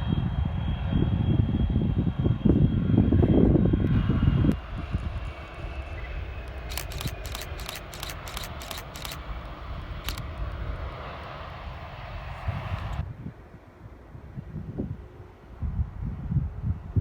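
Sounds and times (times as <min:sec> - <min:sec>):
jet engines on takeoff: 0:00.0 - 0:17.0
sharp clicks: 0:06.5 - 0:09.2, 0:10.0 - 0:10.3.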